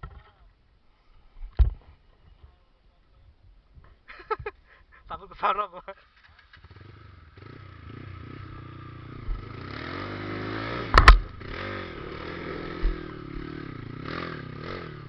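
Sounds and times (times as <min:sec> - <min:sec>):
motorcycle engine revving: 0:06.2 - 0:15.0
low thumps: 0:09.1 - 0:09.6, 0:10.8 - 0:11.6, 0:12.4 - 0:13.6
loud sharp clatter: 0:10.9 - 0:11.4.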